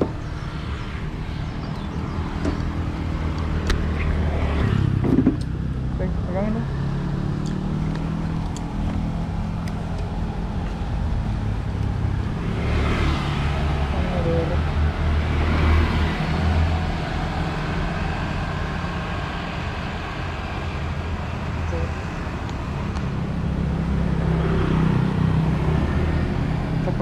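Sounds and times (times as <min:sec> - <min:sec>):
road traffic hum: 0:00.0 - 0:27.0
vehicle passing by: 0:00.0 - 0:27.0.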